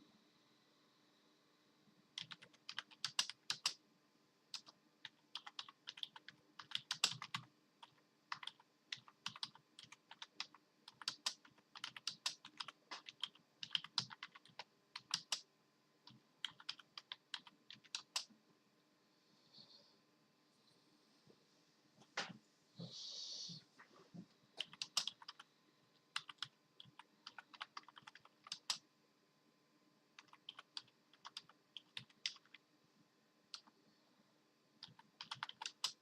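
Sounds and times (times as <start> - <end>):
computer keyboard typing: 2.2 - 3.8, 4.5 - 15.5, 16.1 - 18.3, 24.6 - 25.4, 26.1 - 28.8, 30.2 - 32.6, 33.5 - 33.7, 34.8 - 36.0.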